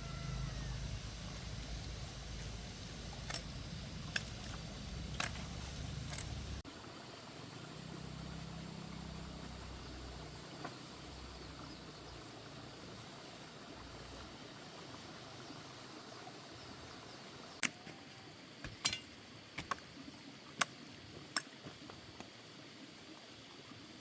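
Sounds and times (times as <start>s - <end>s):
steady low rumble: 0.0s - 6.6s.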